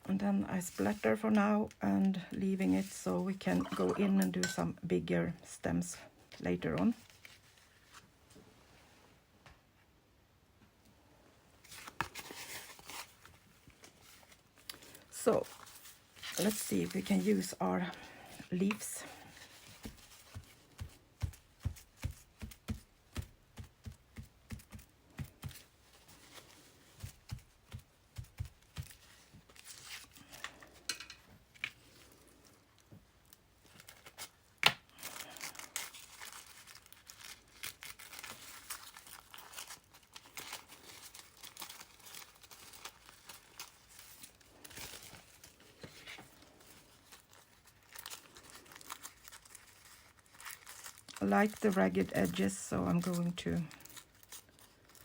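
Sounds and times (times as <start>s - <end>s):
paper tearing and rustling: 11.6s - 17.6s, 35.0s - 55.0s.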